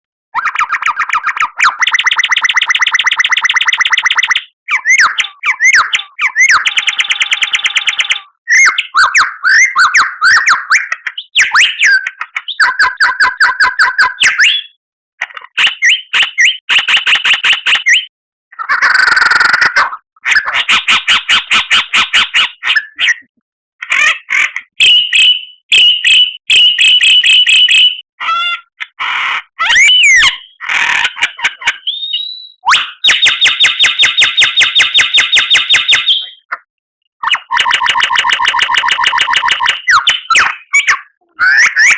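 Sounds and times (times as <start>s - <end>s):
songbird singing: 31.9s - 32.7s.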